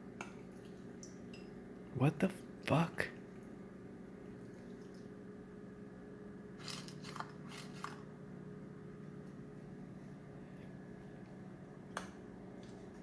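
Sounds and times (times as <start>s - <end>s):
speaker faint steady hum: 0.0s - 13.0s.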